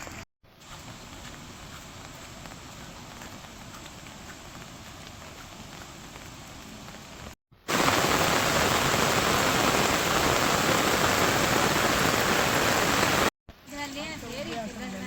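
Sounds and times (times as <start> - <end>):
rain falling: 0.0 - 15.0
heavy rain rushing: 7.0 - 13.3.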